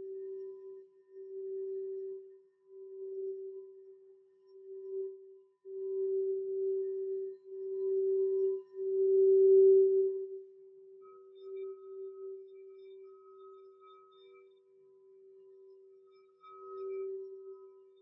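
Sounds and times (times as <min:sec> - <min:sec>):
singing bowl ringing: 0:11.2 - 0:18.0.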